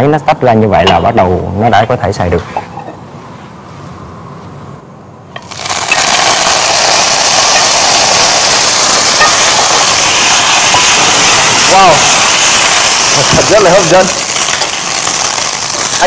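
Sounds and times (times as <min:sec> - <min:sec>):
food sizzling in hot oil: 0:05.4 - 0:16.0.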